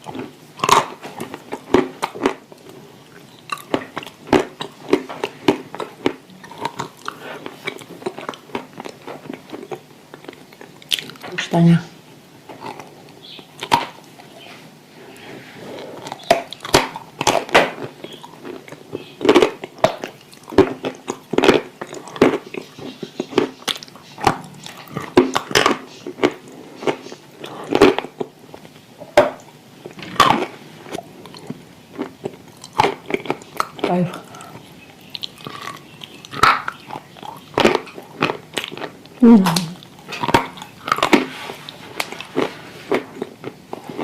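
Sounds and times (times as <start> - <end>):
soft chewing: 0.0 - 11.4, 12.4 - 44.0.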